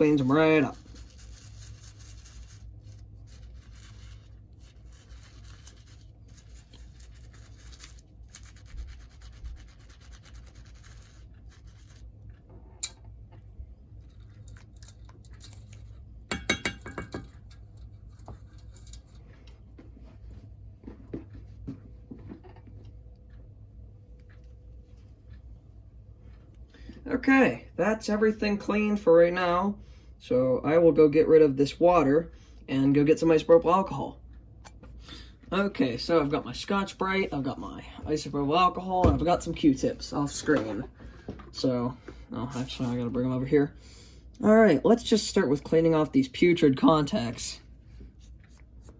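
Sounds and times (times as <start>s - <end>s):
brush scrubbing gears: 0.0s - 12.5s.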